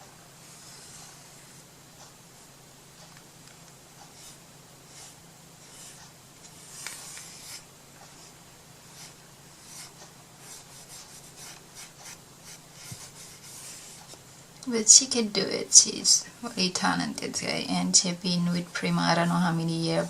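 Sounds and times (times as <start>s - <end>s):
faint steady hum: 0.0s - 20.0s
brush rubbing against surface: 4.0s - 14.2s.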